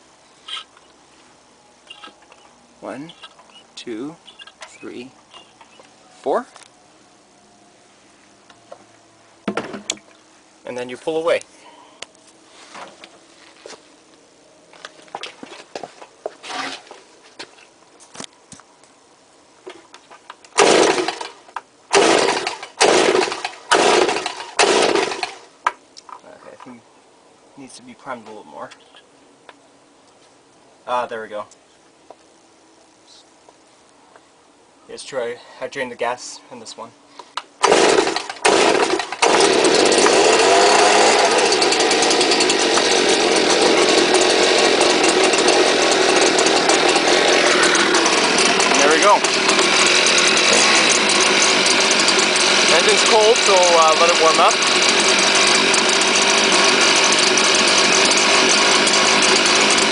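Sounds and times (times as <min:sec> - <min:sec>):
recoil starter rasping pulls: 0:20.6 - 0:25.4, 0:37.6 - 0:59.9.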